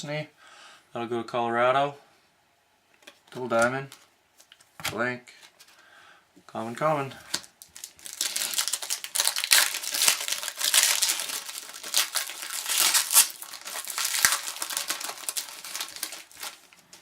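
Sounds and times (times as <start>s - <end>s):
wrapper tearing and crinkling: 7.3s - 17.0s.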